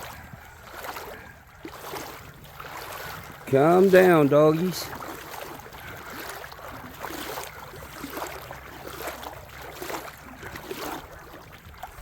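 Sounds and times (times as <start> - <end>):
creek flowing: 0.0 - 12.0
footsteps crunching on rocks: 1.7 - 10.0.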